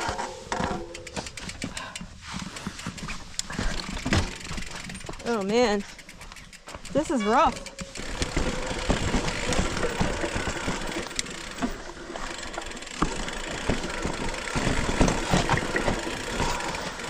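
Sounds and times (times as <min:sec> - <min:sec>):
bike rattling and knocking: 0:00.0 - 0:17.0
tyres crunching on rocks: 0:07.8 - 0:17.0.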